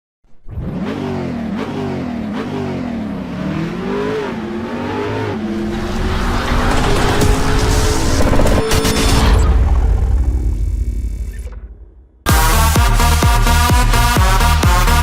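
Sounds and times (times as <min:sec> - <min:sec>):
motorcycle engine revving: 0:00.3 - 0:11.2.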